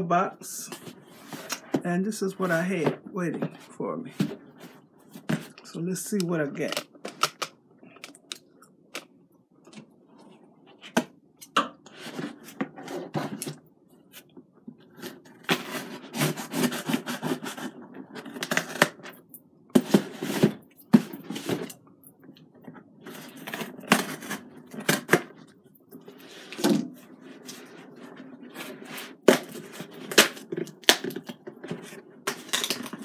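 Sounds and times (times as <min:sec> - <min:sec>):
cardboard scraping and rustling: 0:14.9 - 0:19.0, 0:19.8 - 0:21.7.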